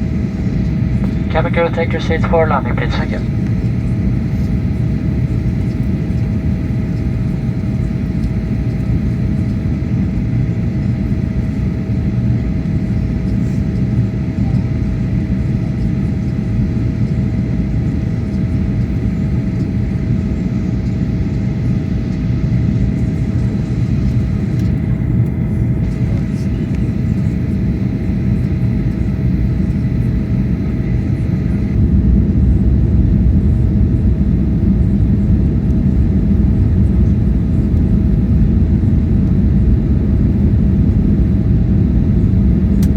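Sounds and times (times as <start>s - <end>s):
aircraft cabin roar: 0.0s - 42.9s
thin steady hum: 0.4s - 5.8s.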